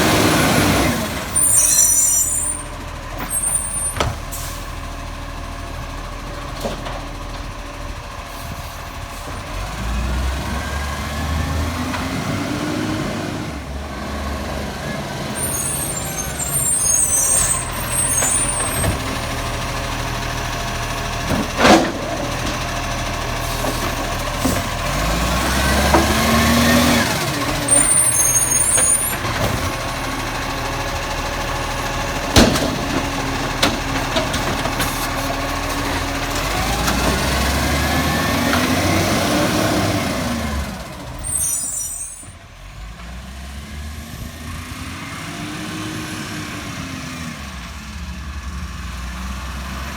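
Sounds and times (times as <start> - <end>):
garbage truck diesel engine: 0.0 - 49.9
air brakes hissing: 1.3 - 4.8, 15.4 - 19.0, 41.2 - 42.4.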